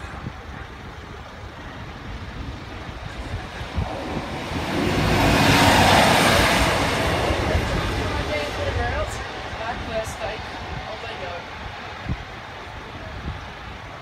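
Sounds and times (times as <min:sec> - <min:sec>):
engine drone: 0:00.0 - 0:10.8
train passing: 0:00.0 - 0:14.0.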